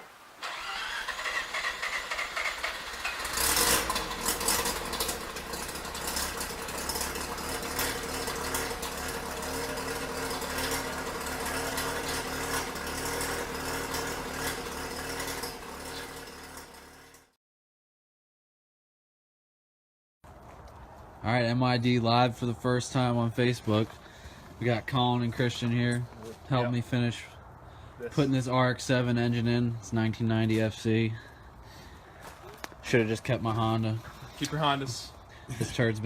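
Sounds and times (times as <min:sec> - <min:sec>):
car engine idling: 0:00.5 - 0:17.3.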